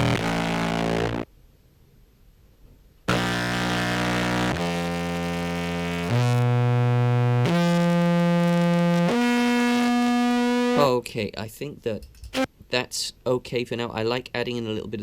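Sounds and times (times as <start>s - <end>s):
amplified contrabass clarinet notes: 0.0s - 1.2s.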